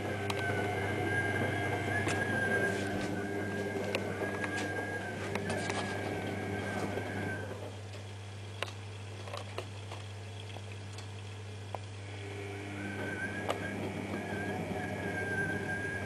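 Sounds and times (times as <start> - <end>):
high whistling bearing whine: 0.0 - 7.7, 12.1 - 16.0
washing machine low hum: 0.0 - 16.0.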